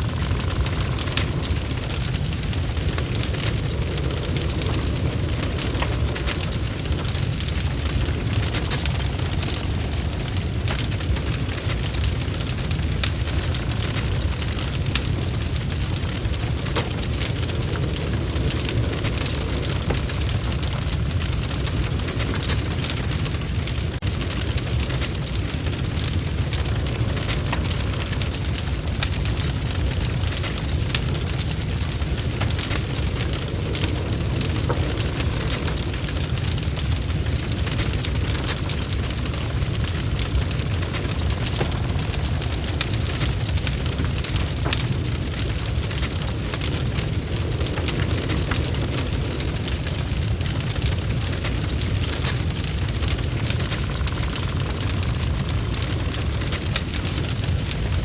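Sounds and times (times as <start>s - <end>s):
bonfire crackling: 0.0s - 58.0s.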